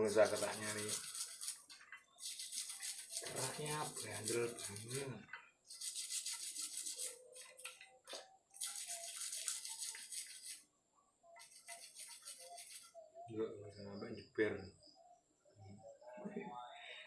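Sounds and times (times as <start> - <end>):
brush scrubbing carbon crust: 0.0 - 7.7, 11.4 - 12.9.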